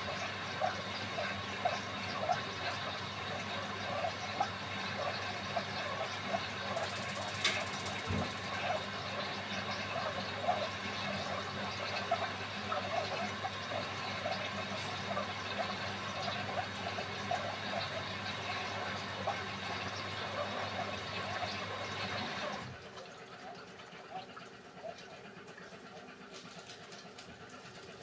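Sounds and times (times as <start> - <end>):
washing machine motor hum: 0.0 - 9.4
water sloshing in washing machine drum: 6.8 - 8.7.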